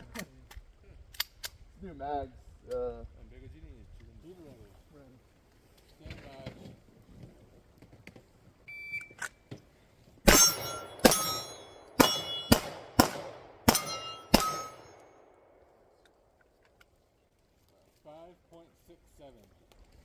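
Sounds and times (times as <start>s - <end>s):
steel targets ringing: 10.3s - 15.2s
pistol shots: 10.3s - 15.6s.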